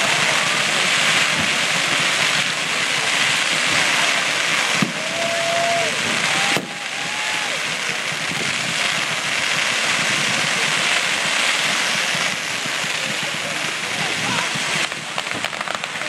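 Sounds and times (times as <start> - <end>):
fireworks crackling: 0.0 - 16.0.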